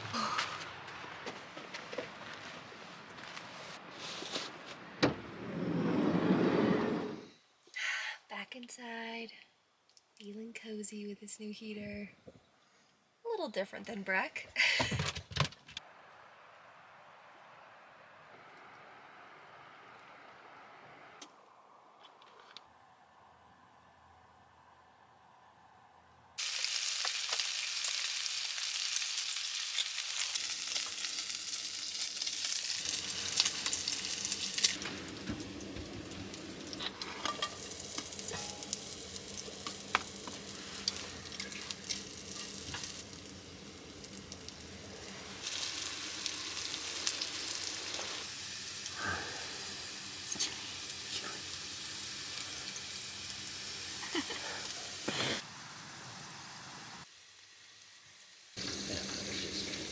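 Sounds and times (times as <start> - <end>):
food sizzling in a pan: 26.4 - 59.9.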